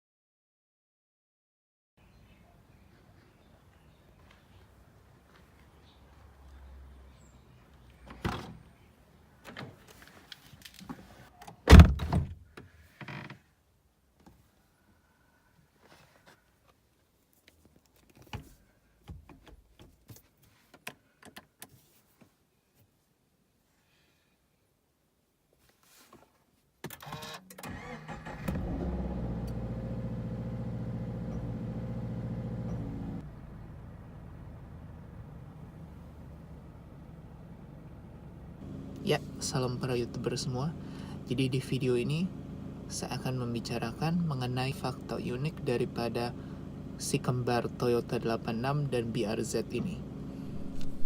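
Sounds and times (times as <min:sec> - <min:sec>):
engine starter cranking: 0:26.9 - 0:29.7
car engine idling: 0:27.7 - 0:51.0.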